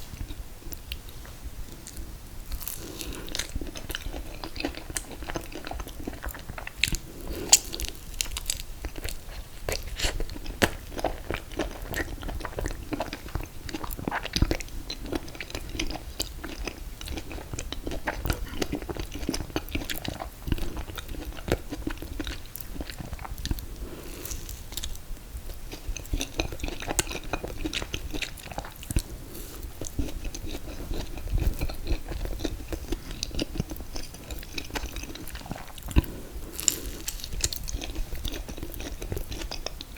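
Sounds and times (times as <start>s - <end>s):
close biting and chewing: 1.8s - 25.0s, 25.7s - 39.9s
wet mouth clicks and crunches: 2.6s - 23.6s, 29.8s - 39.8s.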